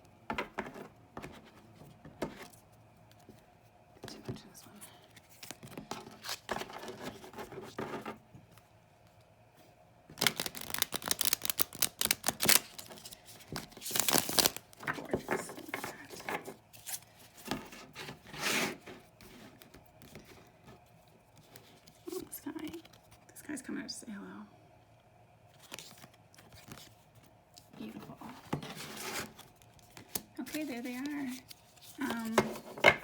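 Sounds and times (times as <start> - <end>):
cards riffle shuffled: 10.2 - 14.8.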